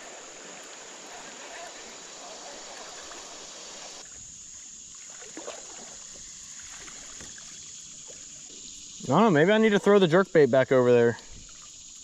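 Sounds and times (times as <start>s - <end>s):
water trickling and lapping: 0.0s - 12.0s
small splashes or knocks: 4.9s - 8.5s.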